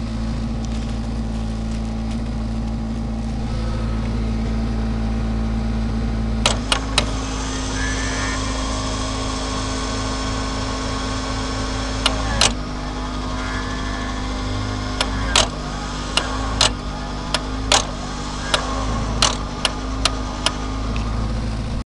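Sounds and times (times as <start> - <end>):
winch mechanical hum: 0.0 - 21.8
sharp clicks or knocks: 6.4 - 7.3, 12.0 - 12.6, 14.8 - 21.1.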